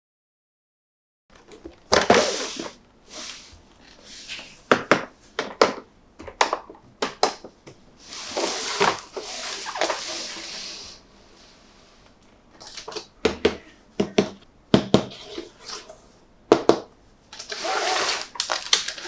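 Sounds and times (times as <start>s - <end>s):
crackly plastic rustling: 17.3s - 19.0s.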